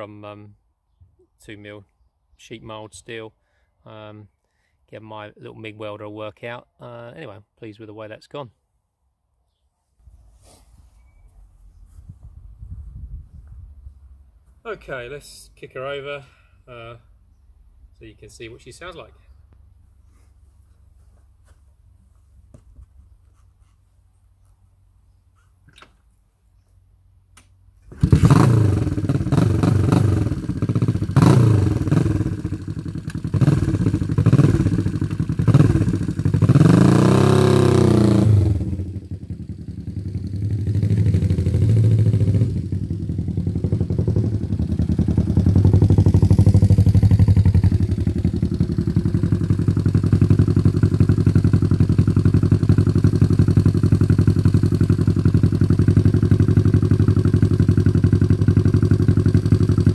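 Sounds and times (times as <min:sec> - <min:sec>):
motorcycle engine revving and idling: 0:27.9 - 0:59.9.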